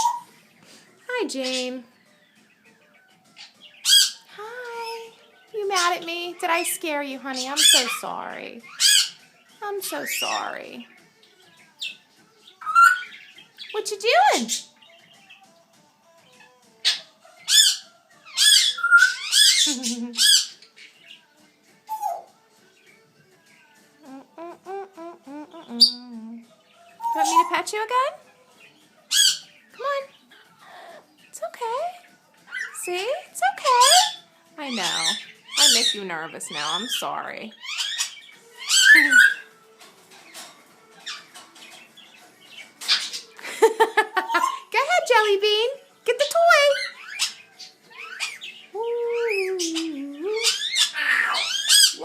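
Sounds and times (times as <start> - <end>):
parrot squawking: 0.0 - 0.3, 1.2 - 1.9, 3.4 - 9.2, 9.8 - 10.8, 12.6 - 14.7, 16.4 - 20.9, 21.9 - 22.3, 24.0 - 26.4, 27.0 - 28.2, 29.1 - 30.4, 31.7 - 39.5, 40.4 - 43.4, 44.0 - 45.4, 46.2 - 52.0.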